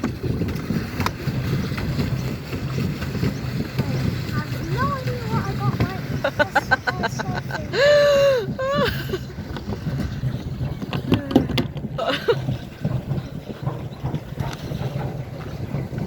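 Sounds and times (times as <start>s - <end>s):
paddle wheel churning water: 0.0s - 16.0s
voices: 3.7s - 9.2s.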